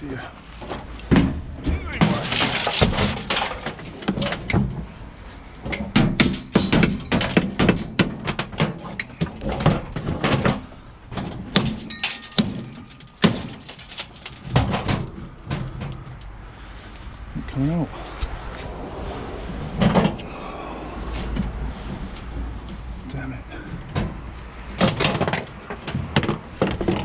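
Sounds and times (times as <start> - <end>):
metal knocks and clanks: 0.6 - 5.0, 5.6 - 16.2, 21.3 - 27.0.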